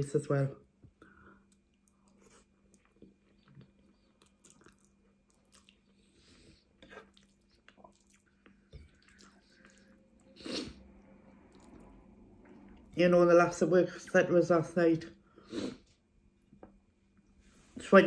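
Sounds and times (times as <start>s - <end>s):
chewing and wet mouth sounds: 1.0s - 13.0s.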